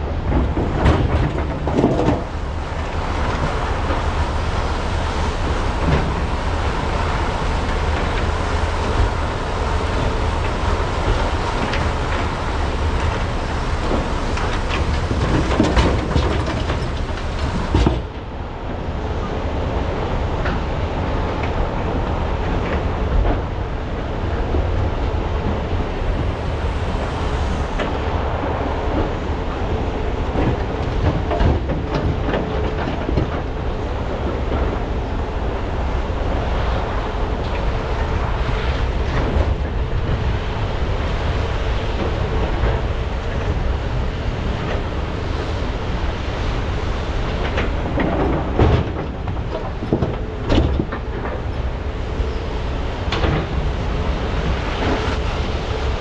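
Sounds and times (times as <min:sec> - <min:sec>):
excavator diesel engines rumbling: 0:00.0 - 0:56.0
knocks and clatter of loading: 0:13.8 - 0:18.2.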